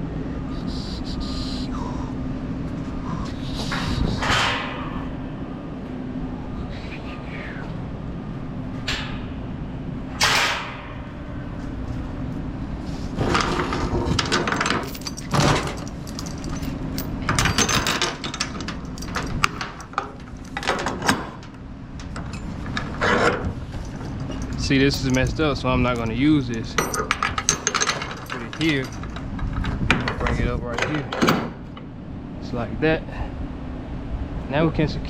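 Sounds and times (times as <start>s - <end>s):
low hum: 0.0s - 34.5s
steel chains clanking and rattling: 13.2s - 31.9s.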